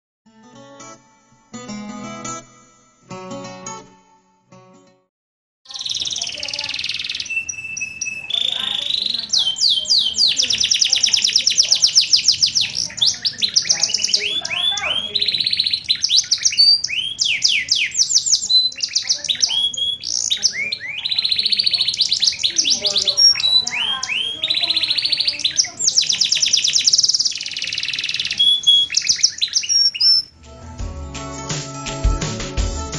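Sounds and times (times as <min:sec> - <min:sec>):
canary singing trills and whistles: 0:05.7 - 0:30.3.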